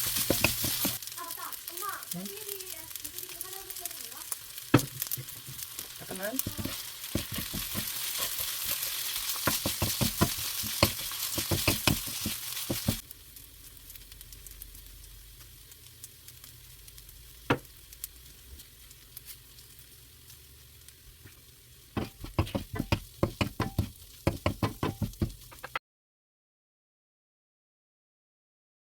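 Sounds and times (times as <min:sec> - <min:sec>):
spatula scraping and tapping pan: 0:00.0 - 0:01.0, 0:04.8 - 0:13.0, 0:22.0 - 0:25.8
food sizzling in hot pan: 0:00.0 - 0:25.8.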